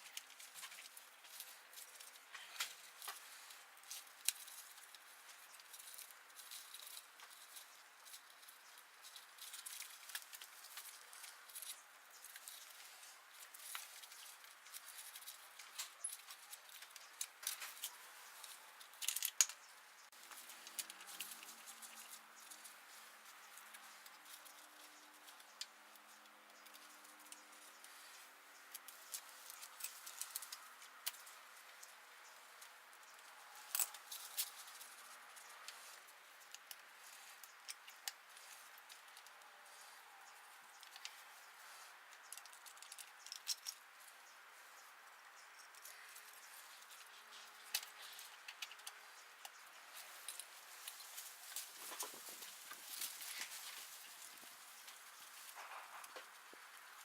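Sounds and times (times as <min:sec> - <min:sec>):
quiet hiss: 0:00.0 - 0:57.0.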